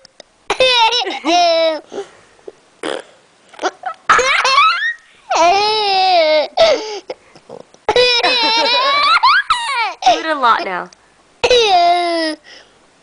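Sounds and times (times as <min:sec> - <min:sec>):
baby squealing: 0:04.1 - 0:06.4, 0:07.9 - 0:10.2.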